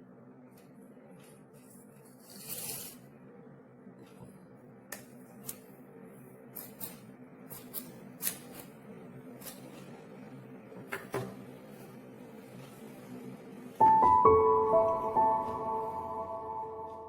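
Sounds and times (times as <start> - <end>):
low steady hum: 12.0 - 17.0.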